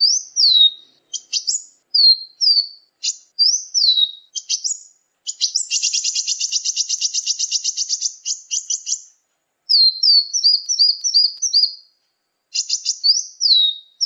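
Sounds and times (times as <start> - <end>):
fast bird trill: 0.0 - 9.1, 9.7 - 11.8, 12.5 - 14.0
sharp bird chips: 2.3 - 9.1, 9.7 - 11.8, 12.5 - 13.8.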